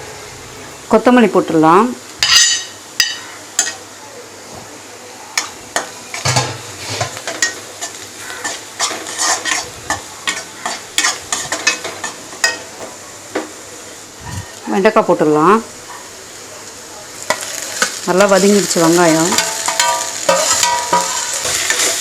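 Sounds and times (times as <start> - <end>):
onions sizzling in a pan: 0.0 - 22.0
spoon scraping a pan: 5.4 - 12.7, 19.3 - 22.0.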